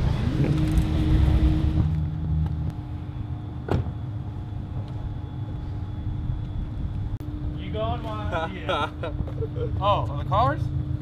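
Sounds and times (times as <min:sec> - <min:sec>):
car engine rumbling: 0:00.0 - 0:08.2.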